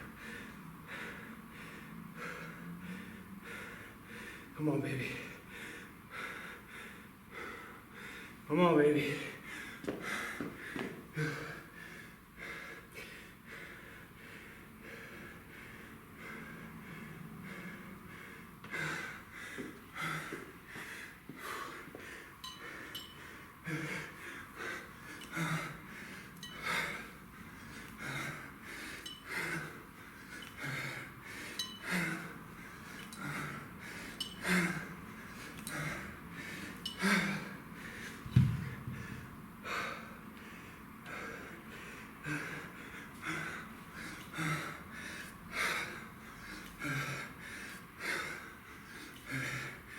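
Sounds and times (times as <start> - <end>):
man breathing hard: 0.0 - 49.9
low thump: 38.3 - 39.1.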